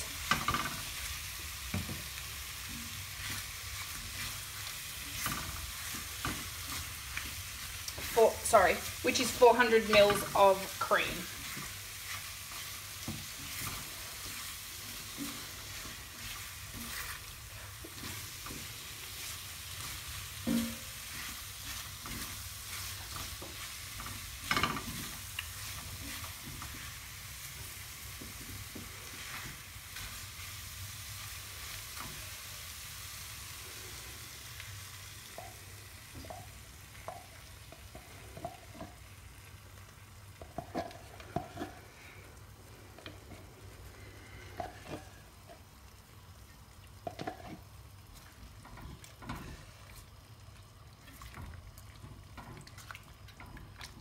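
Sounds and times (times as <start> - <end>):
chicken sizzling in a pan: 0.0 - 54.0
spatula scraping a pan: 11.1 - 32.4, 40.4 - 42.1.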